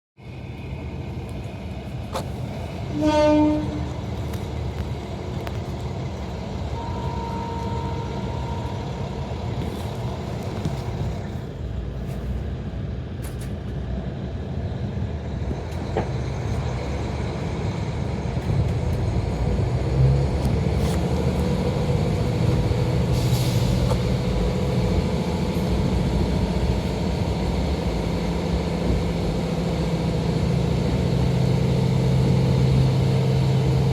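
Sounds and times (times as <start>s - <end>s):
diesel railcar engine running: 0.2s - 33.9s
train horn blast: 2.9s - 4.1s, 6.8s - 9.0s.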